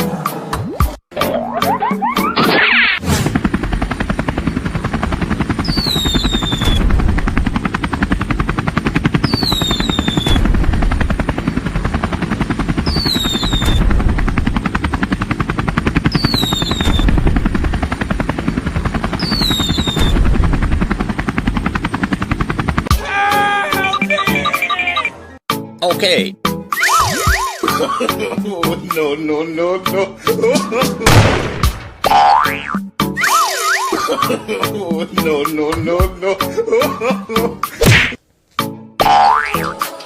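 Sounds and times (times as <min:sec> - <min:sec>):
fast chopping flutter: 0:01.6 - 0:23.0, 0:26.7 - 0:28.0, 0:37.7 - 0:38.2
high falling whistle: 0:05.6 - 0:06.8, 0:09.2 - 0:10.4, 0:12.9 - 0:13.8, 0:16.1 - 0:17.1, 0:19.2 - 0:20.2, 0:26.7 - 0:27.8, 0:33.2 - 0:34.1.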